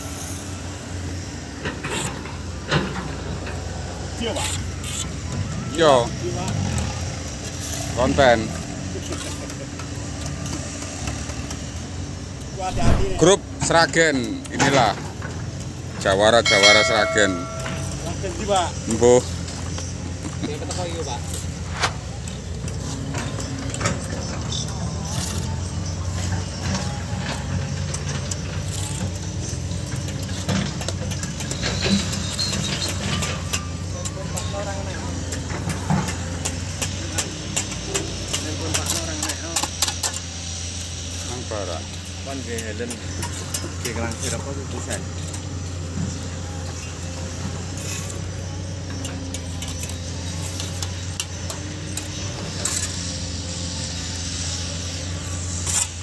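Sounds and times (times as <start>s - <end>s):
low engine hum: 12.6s - 13.7s
metallic clinks and taps: 16.5s - 18.2s.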